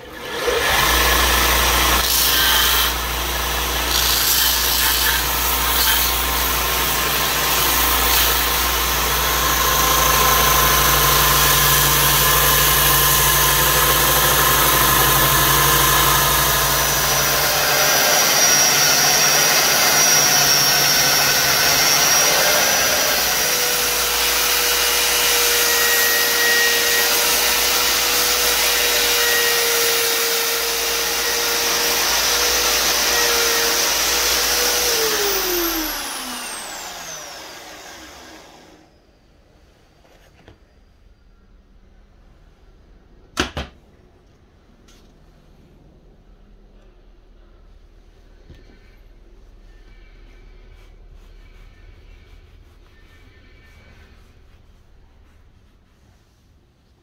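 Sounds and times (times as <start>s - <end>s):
belt grinder sanding wood: 0.1s - 38.7s
grinder motor low hum: 0.1s - 38.7s
sanding disc whine: 0.1s - 39.0s, 48.6s - 56.4s.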